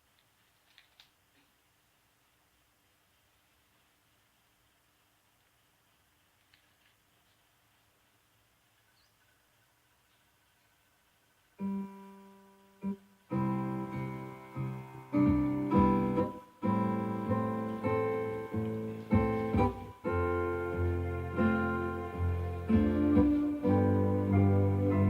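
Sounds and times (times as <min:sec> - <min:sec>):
piano-like keyboard chords: 0:11.6 - 0:25.0.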